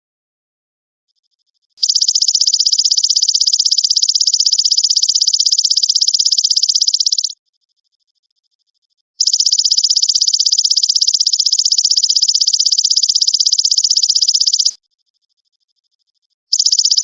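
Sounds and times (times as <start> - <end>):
grasshopper buzzing trill: 16.6 - 17.0.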